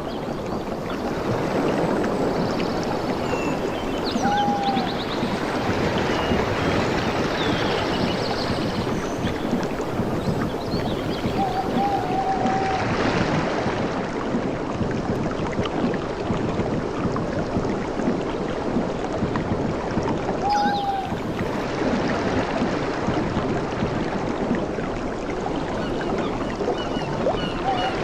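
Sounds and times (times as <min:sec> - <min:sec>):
sea water lapping: 0:00.0 - 0:28.0.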